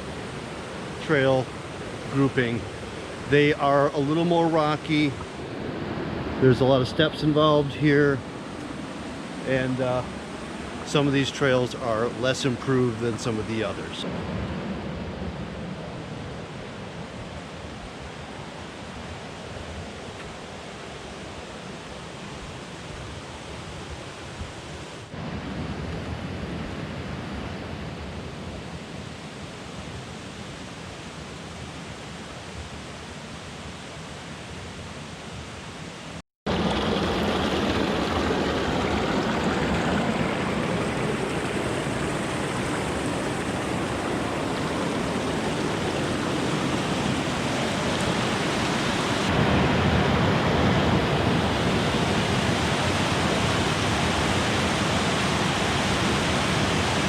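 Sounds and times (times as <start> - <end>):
rush of falling water: 0.0 - 14.7, 36.0 - 57.0.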